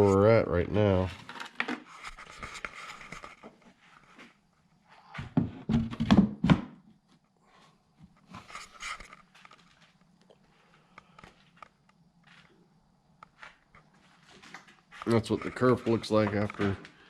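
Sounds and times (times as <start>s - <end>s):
knocks and thumps: 5.1s - 6.8s
faint steady hum: 6.9s - 17.0s
soft rustling: 13.3s - 17.0s.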